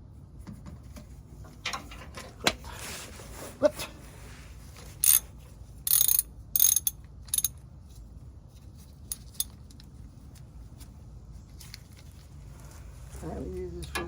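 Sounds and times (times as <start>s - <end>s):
ratchet wrench clicking: 5.0s - 5.2s, 5.9s - 7.6s.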